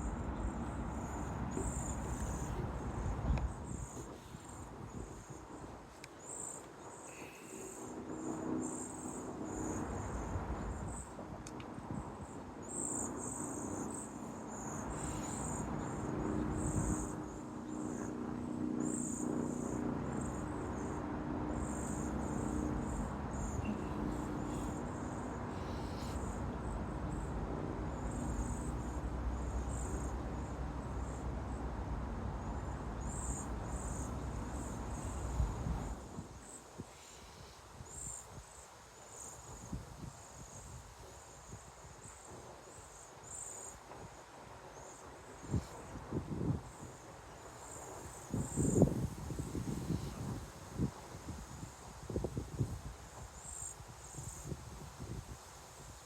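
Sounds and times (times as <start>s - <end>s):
steady low hum: 0.0s - 5.6s, 11.9s - 36.2s
insects chirping: 0.0s - 56.0s.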